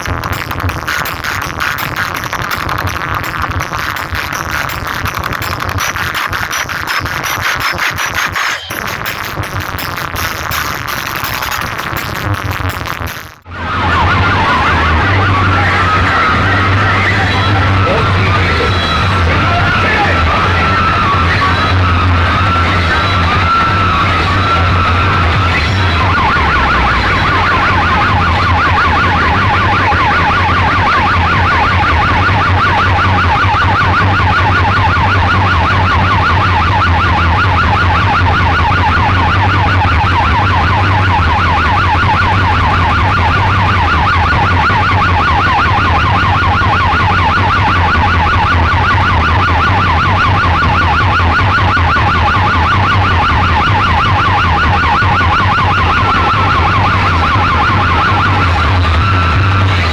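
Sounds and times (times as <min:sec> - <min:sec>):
warbling siren tone: 0:05.5 - 0:09.2, 0:13.5 - 0:59.9
deep bass drone: 0:13.5 - 0:51.6, 0:52.2 - 0:59.9.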